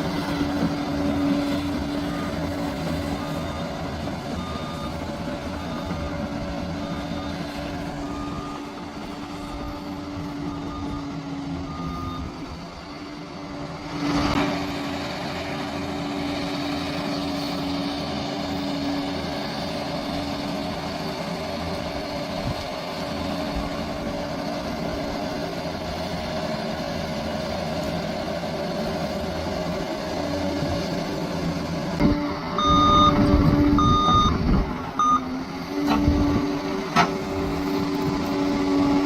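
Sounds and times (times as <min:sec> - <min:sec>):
bulldozer diesel engine running: 0:00.0 - 0:39.0.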